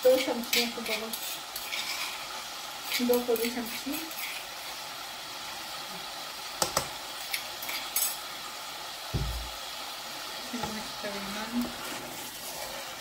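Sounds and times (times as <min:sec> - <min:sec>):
chicken sizzling in a pot: 0:00.0 - 0:13.0
short low thump: 0:09.2 - 0:09.5.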